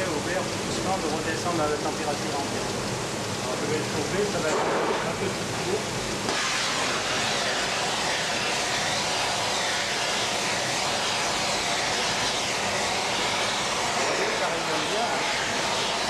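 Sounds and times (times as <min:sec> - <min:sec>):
gas torch flame hissing: 0:00.0 - 0:16.0.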